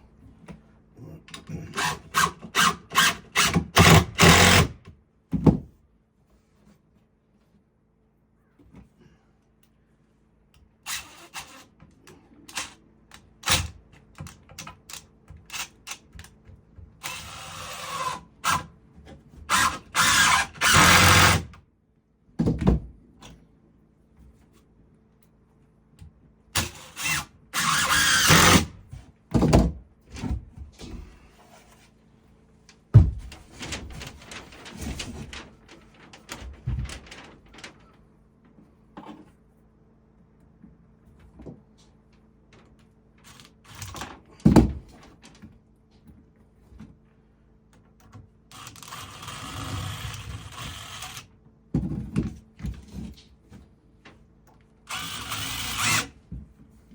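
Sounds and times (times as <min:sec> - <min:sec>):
power tool running: 0:01.8 - 0:04.8, 0:19.5 - 0:21.5, 0:26.6 - 0:28.8, 0:54.9 - 0:56.1.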